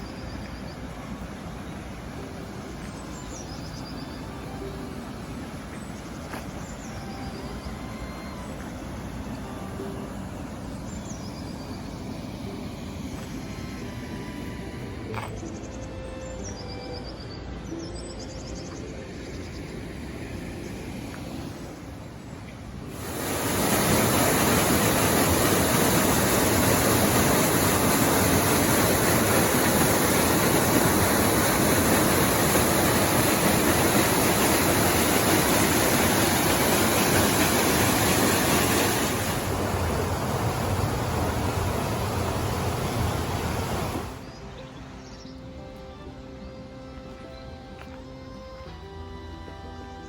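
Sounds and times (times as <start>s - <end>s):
wind rushing over microphone: 19.7s - 44.2s.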